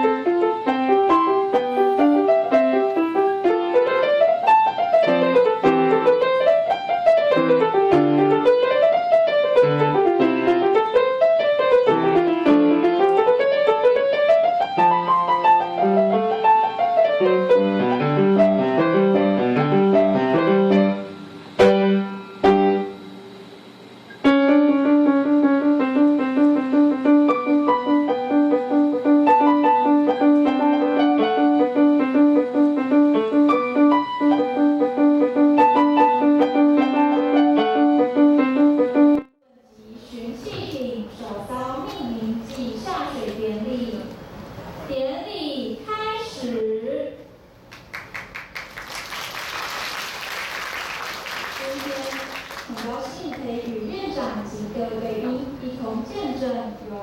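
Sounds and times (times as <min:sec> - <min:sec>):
piano playing fast arpeggios: 0:00.0 - 0:22.9, 0:24.2 - 0:39.3.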